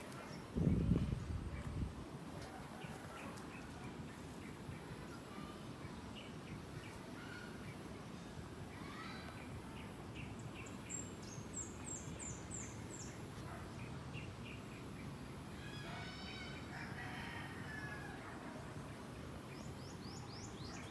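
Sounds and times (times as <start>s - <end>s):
birds chirping: 0.0s - 18.0s, 18.7s - 20.9s
low outdoor background: 0.0s - 20.9s
long bird call with overtones: 15.5s - 16.8s.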